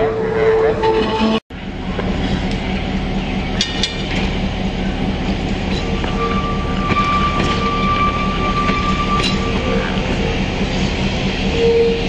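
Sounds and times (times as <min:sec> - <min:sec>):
electric trolley car hum: 0:00.0 - 0:12.0
high even tone: 0:05.0 - 0:10.9.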